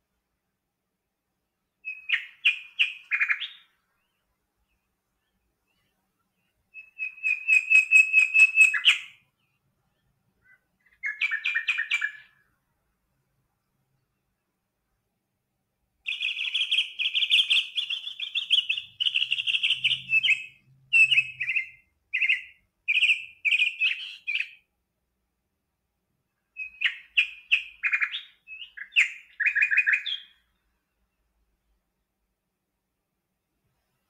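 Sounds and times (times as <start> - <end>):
songbird chirps and trills: 0.0 - 34.0.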